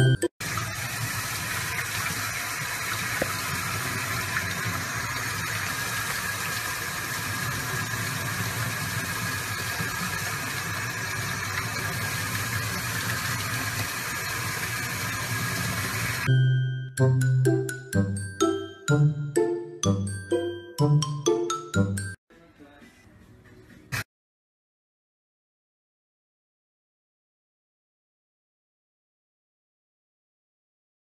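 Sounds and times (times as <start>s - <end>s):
water running from faucet: 0.4s - 16.3s.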